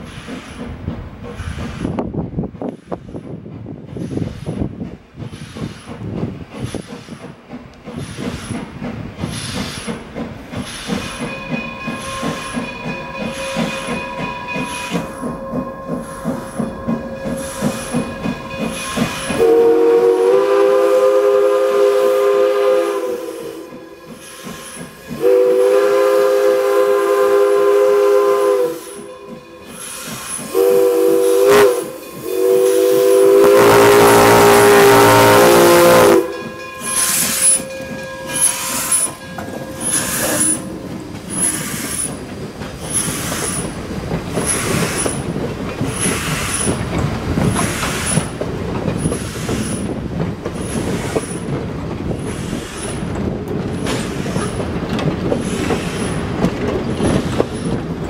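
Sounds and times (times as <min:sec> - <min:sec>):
steam hissing: 0:00.0 - 0:58.0
train wheels rumbling on rails: 0:00.0 - 0:58.0
steam locomotive chime whistle: 0:10.8 - 0:42.2.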